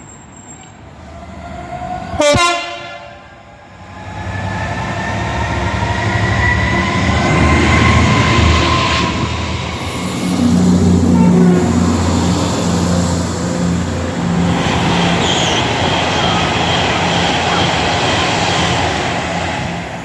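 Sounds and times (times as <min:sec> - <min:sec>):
train rumbling by: 0:00.0 - 0:20.0
train horn blast: 0:02.2 - 0:03.4, 0:10.0 - 0:18.8.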